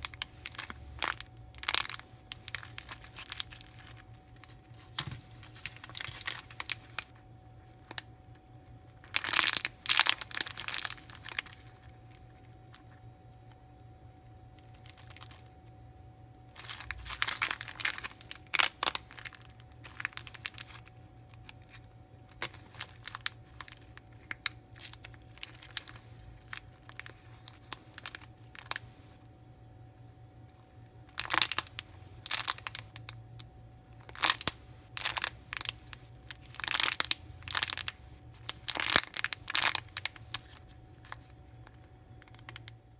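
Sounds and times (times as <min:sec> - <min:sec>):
plastic packaging crinkling: 0:00.0 - 0:13.6, 0:14.5 - 0:15.6, 0:16.5 - 0:29.2, 0:31.0 - 0:42.9.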